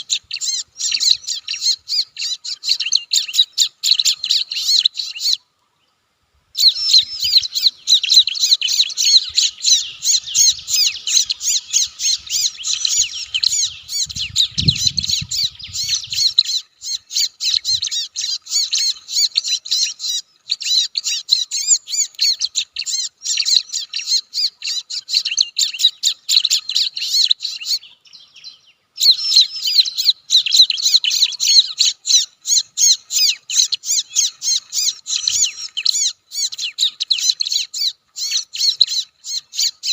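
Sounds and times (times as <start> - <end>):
bird rapid high-pitched chattering: 0.0 - 5.4, 6.6 - 27.8, 29.0 - 39.9.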